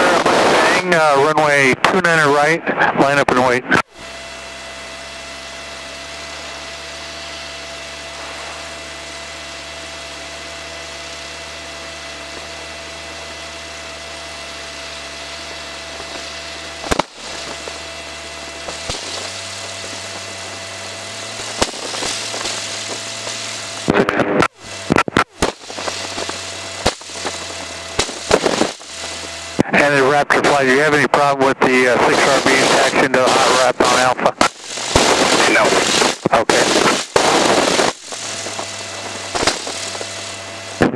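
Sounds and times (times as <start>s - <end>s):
propeller engine hum: 0.0s - 40.9s
sharp clicks and crackles: 18.6s - 20.0s, 21.4s - 29.7s, 32.1s - 40.9s.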